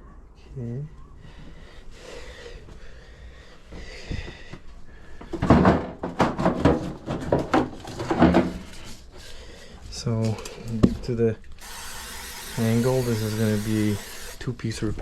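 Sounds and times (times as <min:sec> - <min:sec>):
hard objects knocking and clattering: 0:05.2 - 0:08.8.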